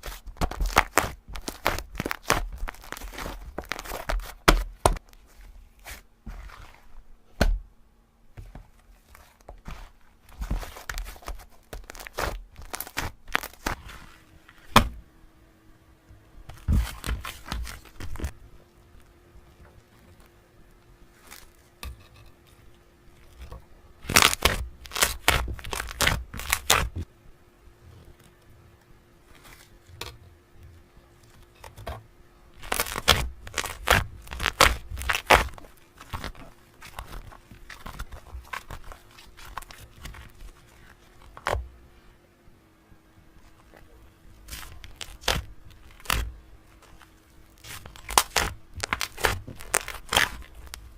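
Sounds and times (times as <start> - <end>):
tearing and crinkling: 0.0 - 7.0, 8.9 - 14.8, 16.5 - 18.4, 21.1 - 21.8, 23.2 - 27.1, 32.5 - 41.6, 43.4 - 50.9
faint steady hum: 0.0 - 50.9.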